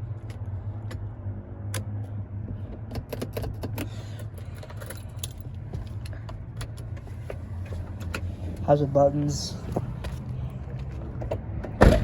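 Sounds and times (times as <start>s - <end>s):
small clicks and jingles: 3.3s - 6.8s.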